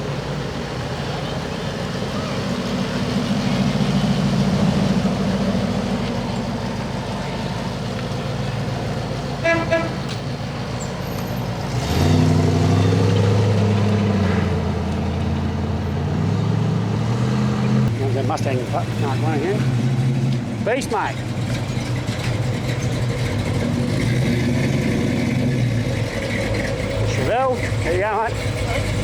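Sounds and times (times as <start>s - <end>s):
cars driving slowly past: 0.0s - 29.0s
deep steady engine note: 0.0s - 29.0s
car horn double toot: 9.4s - 10.2s.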